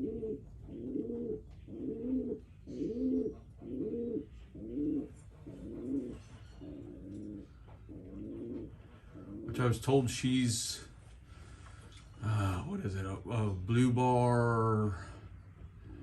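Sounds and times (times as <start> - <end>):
pigeon cooing: 0.0 - 9.8, 14.2 - 16.0.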